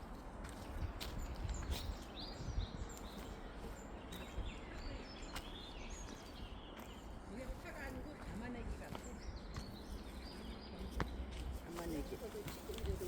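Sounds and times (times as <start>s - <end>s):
small birds chirping: 0.0s - 13.0s
footsteps crunching on forest floor: 3.0s - 13.0s.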